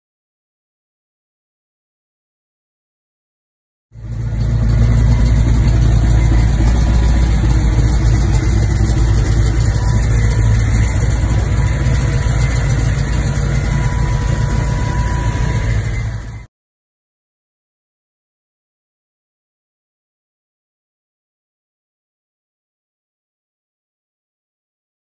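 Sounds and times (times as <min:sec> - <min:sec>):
car engine idling: 0:04.0 - 0:16.5.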